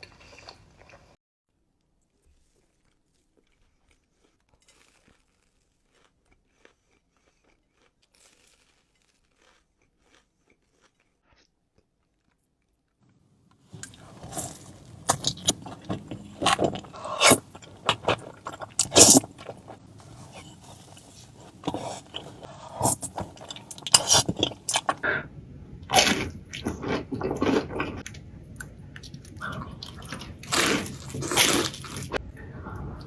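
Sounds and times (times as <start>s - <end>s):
crunching and chewing crisp food: 0.0s - 1.2s, 1.8s - 25.2s, 25.8s - 33.0s.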